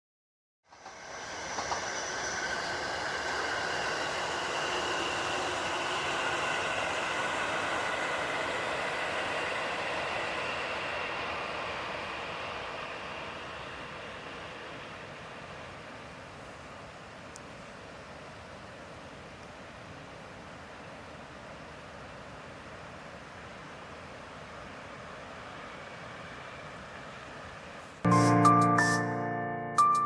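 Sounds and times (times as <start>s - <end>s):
electric train passing on rails: 0.6s - 30.0s.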